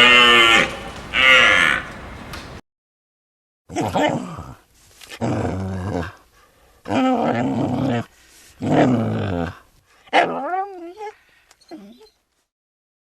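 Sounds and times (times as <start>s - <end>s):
animal low drawn-out calls: 0.0s - 2.6s.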